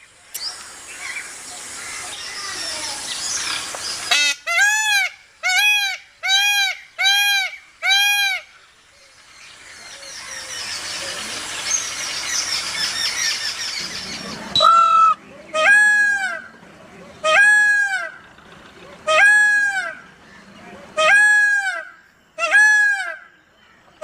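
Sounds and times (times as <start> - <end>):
small birds chirping: 0.0 - 4.4, 8.4 - 15.6
peacock calling loudly: 0.9 - 8.7, 9.5 - 24.0.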